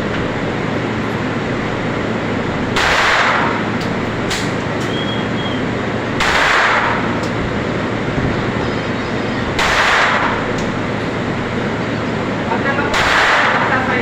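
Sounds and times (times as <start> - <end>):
steady background noise: 0.0 - 14.0
loud gunshots: 2.7 - 3.8, 6.1 - 7.2, 9.5 - 10.6, 12.8 - 14.0
faint gunshot cracks: 2.8 - 3.6, 6.2 - 7.0, 9.6 - 10.4, 12.9 - 13.7.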